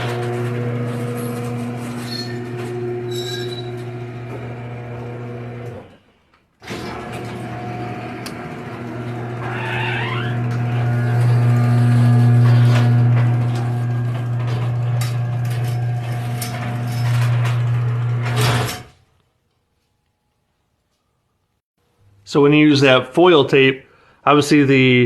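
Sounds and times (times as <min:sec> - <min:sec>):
squeaking door rollers: 0:00.0 - 0:06.0, 0:06.6 - 0:19.0
garage door motor hum: 0:00.0 - 0:19.1.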